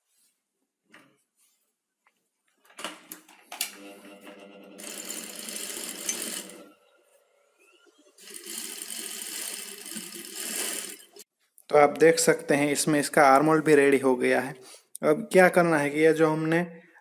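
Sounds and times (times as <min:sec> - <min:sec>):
sewing machine running: 0:03.7 - 0:06.8, 0:08.0 - 0:11.2.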